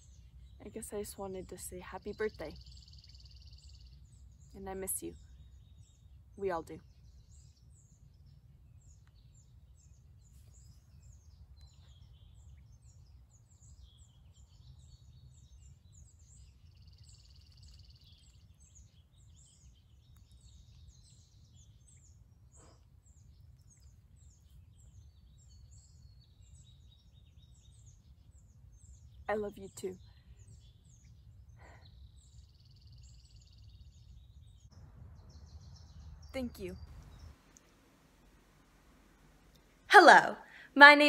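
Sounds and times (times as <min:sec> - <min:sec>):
faint birds chirping: 0:00.0 - 0:41.0
low background rumble: 0:33.4 - 0:41.0.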